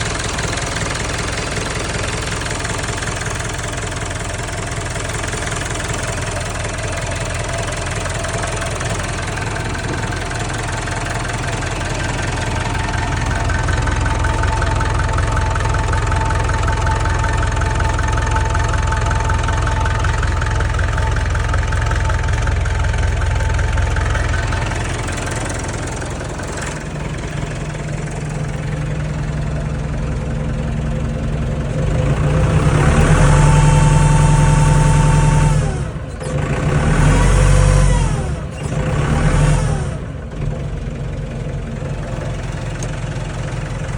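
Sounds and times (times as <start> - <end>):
tractor diesel engine revving: 0.0 - 43.9.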